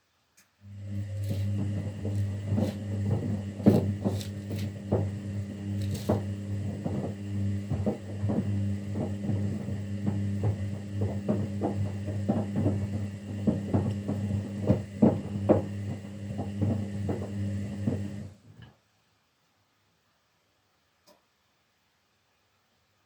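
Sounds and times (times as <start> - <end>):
washing machine motor hum: 0.6 - 18.7
tumbling wet load knocks: 0.8 - 18.3.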